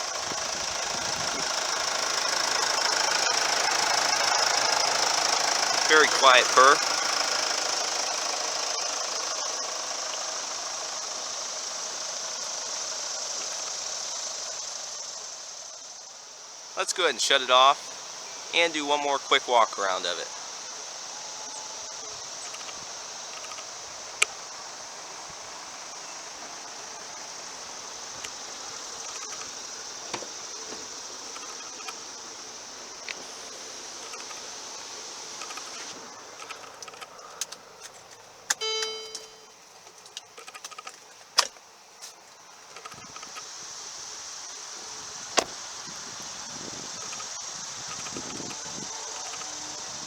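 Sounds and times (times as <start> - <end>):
diesel engine idling: 0.0 - 39.5
high-pitched insect drone: 0.0 - 50.0.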